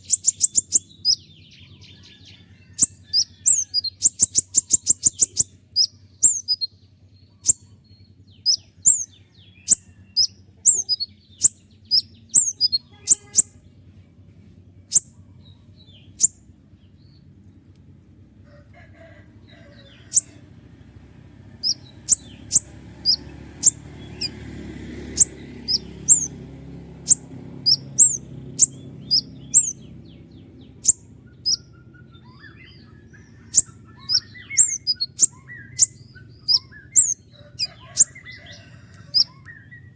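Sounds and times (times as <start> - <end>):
bird high sharp chirps: 0.0 - 2.0, 2.8 - 6.7, 7.4 - 7.7, 8.3 - 13.6, 14.9 - 15.2, 16.0 - 16.4, 20.1 - 20.3, 21.6 - 24.4, 25.1 - 26.4, 27.0 - 29.9, 30.6 - 39.8.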